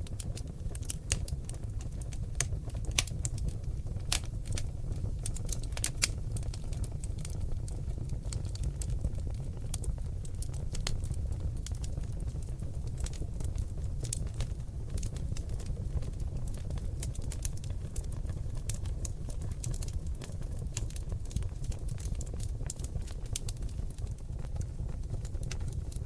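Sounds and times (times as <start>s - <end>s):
logs crackling and popping: 0.0s - 26.0s
low rumble of flames: 0.0s - 26.0s.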